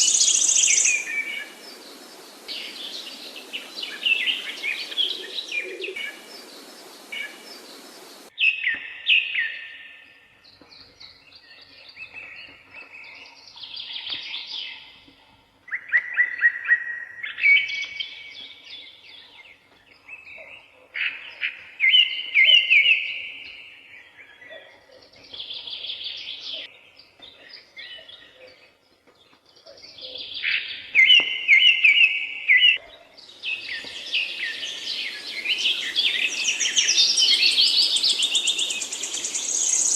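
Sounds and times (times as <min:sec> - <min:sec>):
background hiss: 0:00.0 - 0:08.3, 0:33.2 - 0:39.9
soft bird chirps: 0:00.0 - 0:09.9
songbird trills: 0:00.0 - 0:39.9.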